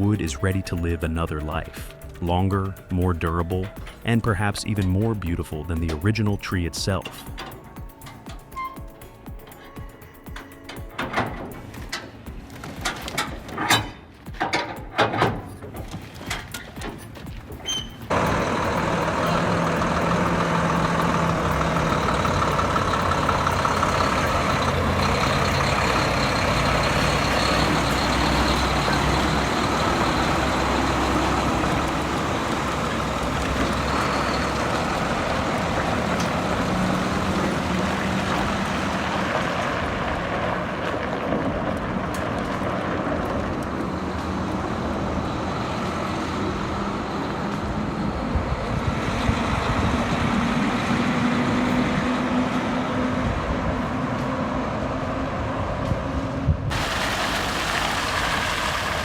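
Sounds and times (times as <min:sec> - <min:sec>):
heavy machinery engine running: 0:15.8 - 0:59.0.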